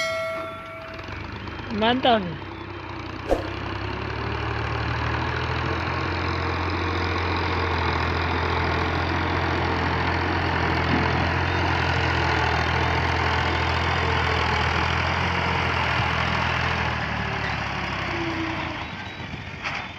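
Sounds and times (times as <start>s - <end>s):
tractor diesel engine idling: 5.2s - 19.0s.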